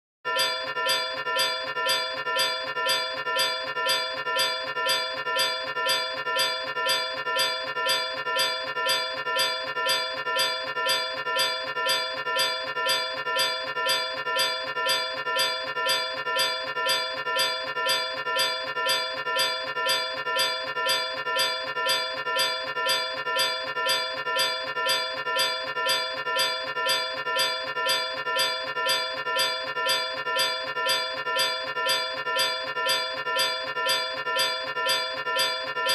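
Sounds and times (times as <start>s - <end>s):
bell-like tone struck repeatedly: 0.3s - 18.6s.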